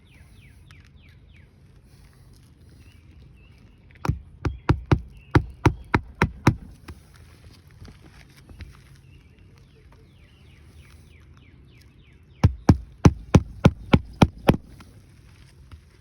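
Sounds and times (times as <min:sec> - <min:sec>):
hammer striking a nail: 0:04.0 - 0:06.9, 0:12.4 - 0:14.8.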